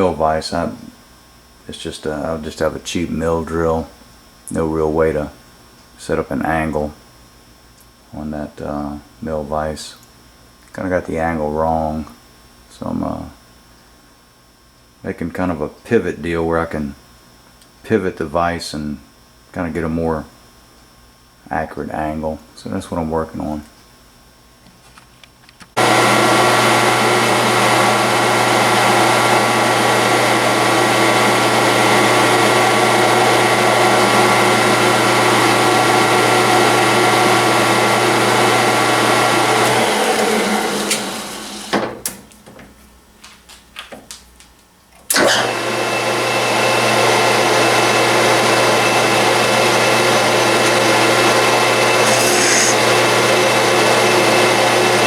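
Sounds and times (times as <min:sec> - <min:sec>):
machine tool electric motor running: 0:27.2 - 0:41.8, 0:46.9 - 0:55.0.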